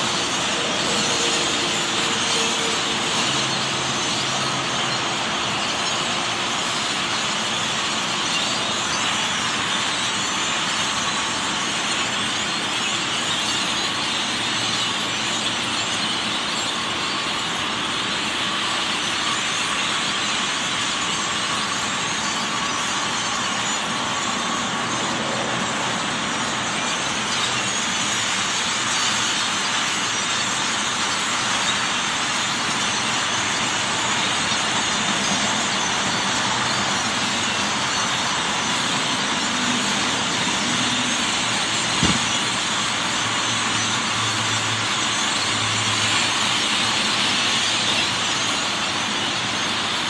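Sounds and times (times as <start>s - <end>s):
flock of birds calling: 0.0s - 50.0s
sharp knock: 42.0s - 42.4s.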